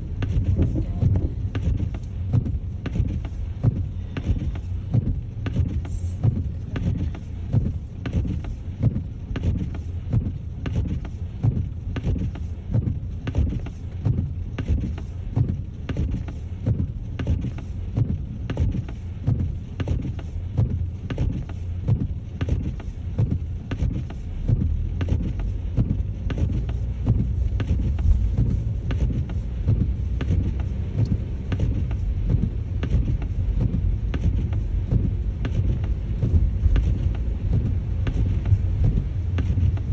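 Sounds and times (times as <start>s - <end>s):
engine and tyres rumbling: 0.0s - 39.9s.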